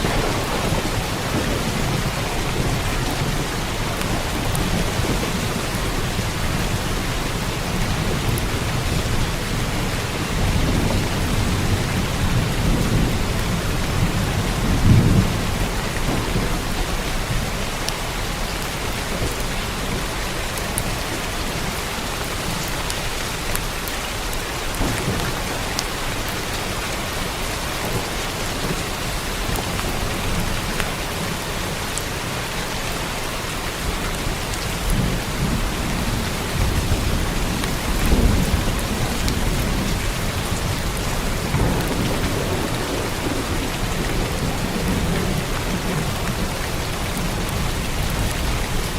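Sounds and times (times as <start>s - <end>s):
rolling thunder: 0.0s - 18.4s, 24.7s - 31.4s, 34.2s - 48.9s
raindrops ticking: 0.0s - 32.1s
heavy rainfall: 0.0s - 48.9s.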